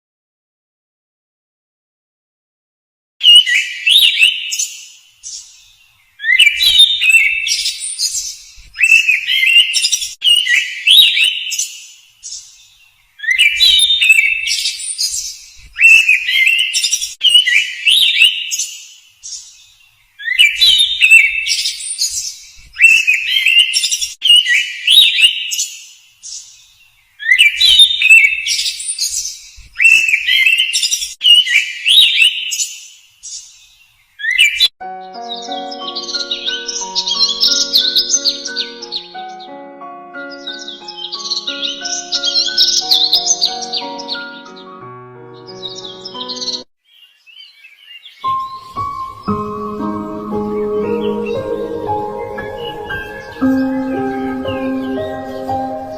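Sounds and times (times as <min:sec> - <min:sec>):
bird chirps and whistles: 0:03.2 - 0:04.8, 0:06.2 - 0:11.6, 0:13.2 - 0:19.4, 0:20.2 - 0:25.6, 0:27.2 - 0:32.7, 0:34.2 - 0:34.7.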